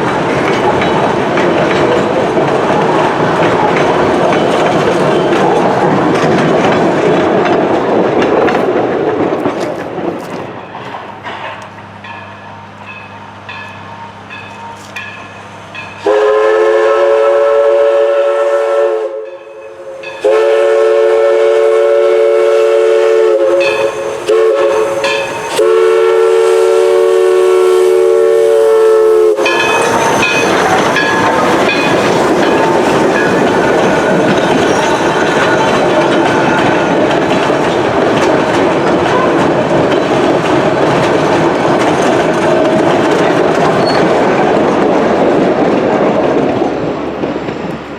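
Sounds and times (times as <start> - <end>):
train rumbling and clattering past: 0.0 - 47.9
steam whistle blowing: 16.0 - 30.6.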